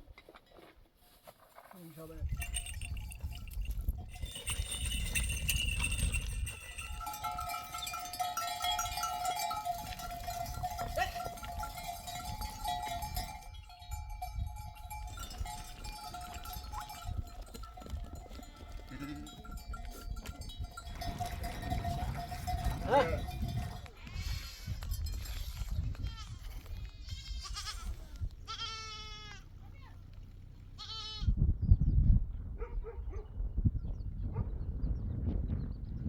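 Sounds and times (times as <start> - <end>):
sheep bells clinking: 2.0 - 27.9.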